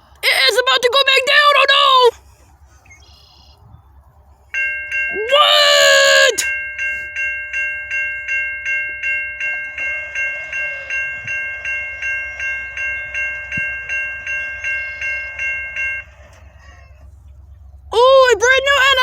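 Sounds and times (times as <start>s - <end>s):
low rumble of passing train: 0.0s - 19.0s
railroad crossing bell ringing: 4.5s - 19.0s.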